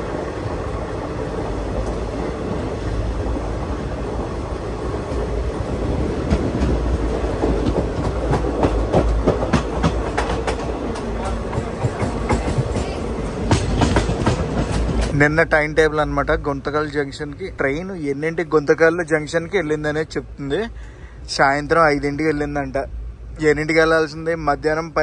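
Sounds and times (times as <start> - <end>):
train rumbling: 0.0 - 25.0
wheels clattering over rail joints: 5.2 - 15.4.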